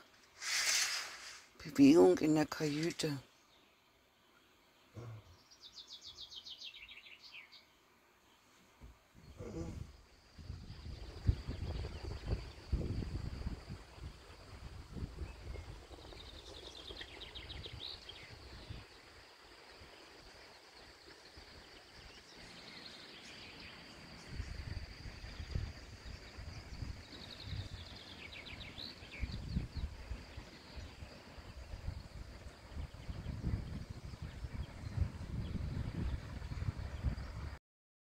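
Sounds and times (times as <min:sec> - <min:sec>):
wind gusting on microphone: 0:09.2 - 0:19.0, 0:24.2 - 0:37.6.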